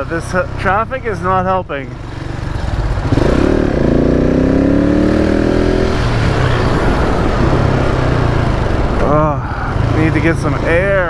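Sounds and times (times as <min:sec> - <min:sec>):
motorcycle engine pulling away: 0:02.0 - 0:09.2
riding noise rush: 0:05.8 - 0:11.0.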